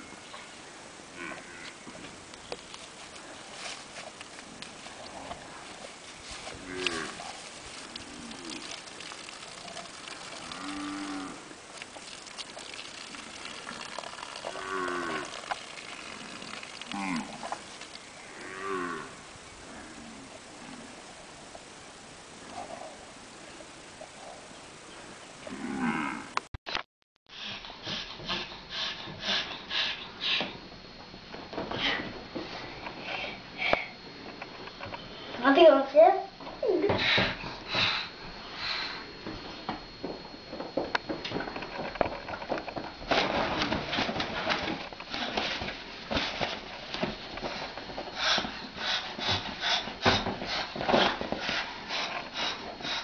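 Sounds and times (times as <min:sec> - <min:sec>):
cattle mooing: 0:06.5 - 0:08.7, 0:09.6 - 0:11.5, 0:14.4 - 0:17.6, 0:18.2 - 0:20.2, 0:25.5 - 0:26.4.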